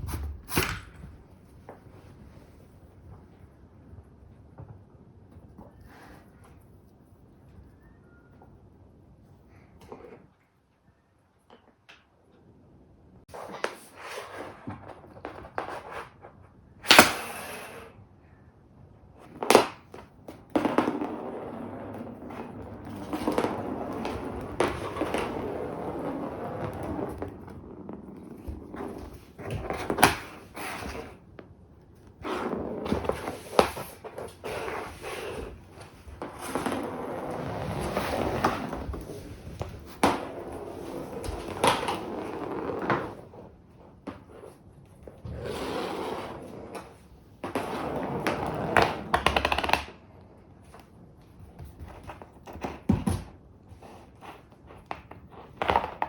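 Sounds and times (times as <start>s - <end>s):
rustling and scraping: 0.0s - 3.6s, 19.2s - 49.8s.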